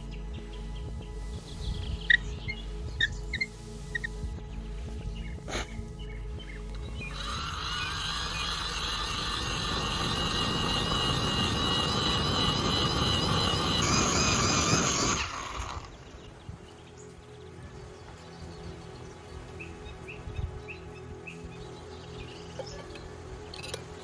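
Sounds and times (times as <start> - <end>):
heavy low rumble: 0.0 - 15.1
small motor whining: 6.6 - 16.1.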